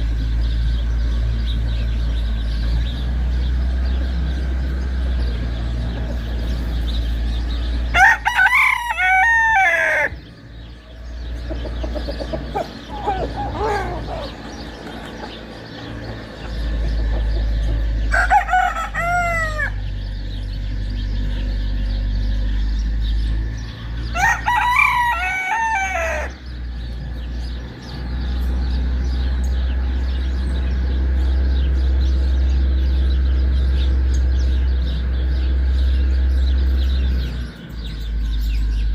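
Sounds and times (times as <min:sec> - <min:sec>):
steady low rumble: 0:00.0 - 0:09.2, 0:10.1 - 0:25.2
rooster crowing: 0:07.9 - 0:10.2, 0:12.5 - 0:14.5, 0:18.0 - 0:20.0, 0:24.0 - 0:26.5.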